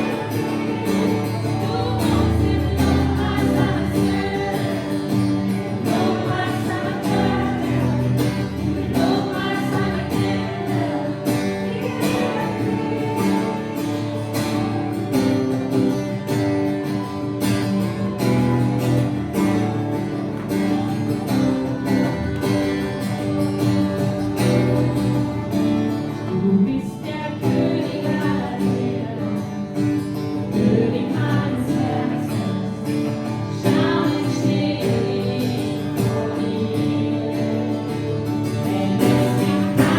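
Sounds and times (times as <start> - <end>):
person singing: 0.0 - 15.6
strummed acoustic guitar: 0.0 - 39.9.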